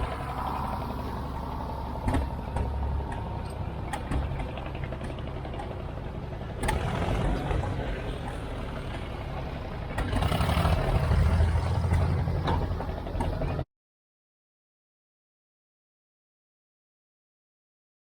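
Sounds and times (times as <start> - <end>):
tractor engine rumbling: 0.0 - 13.7.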